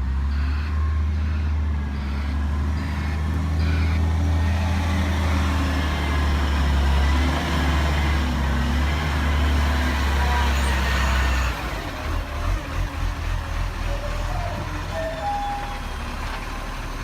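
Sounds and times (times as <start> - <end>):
garbage truck engine droning: 0.0 - 17.0.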